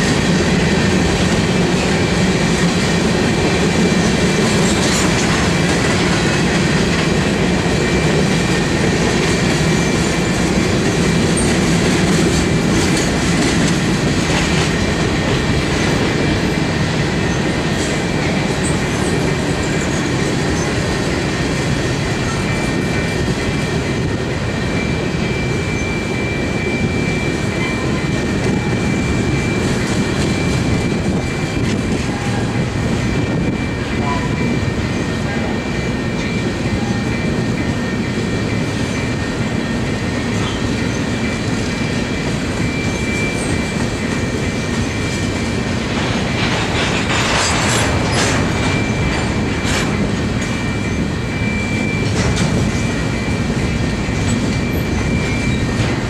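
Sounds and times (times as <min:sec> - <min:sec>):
freight train rumbling past: 0:00.0 - 0:56.0
high steady ring: 0:48.4 - 0:56.0.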